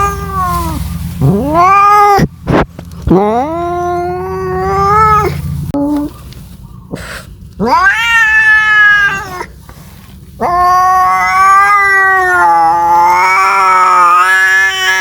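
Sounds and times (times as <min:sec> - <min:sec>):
cat yowling: 0:00.0 - 0:02.3, 0:03.1 - 0:06.0, 0:07.6 - 0:09.5, 0:10.4 - 0:15.0.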